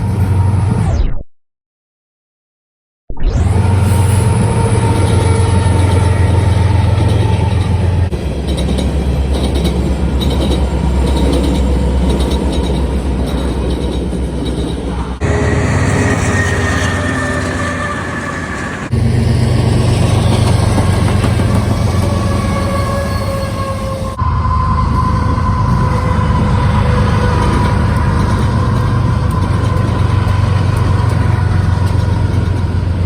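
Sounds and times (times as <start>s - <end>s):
diesel locomotive engine drone: 0.0s - 1.0s, 3.3s - 33.0s
train wheels rumbling on rails: 3.6s - 33.0s.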